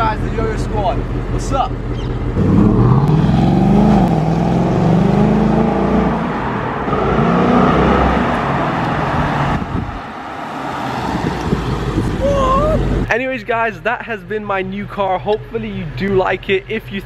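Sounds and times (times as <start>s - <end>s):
car engine accelerating hard: 0.0s - 13.1s.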